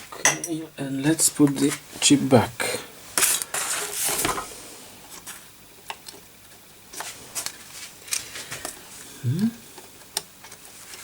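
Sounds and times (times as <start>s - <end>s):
rustling scrape: 3.2s - 4.4s.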